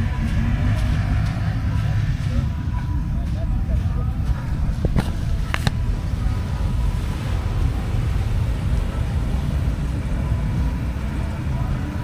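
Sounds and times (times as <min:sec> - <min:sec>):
vehicle driving rumble: 0:00.0 - 0:12.0
sharp clicks: 0:04.3 - 0:05.9.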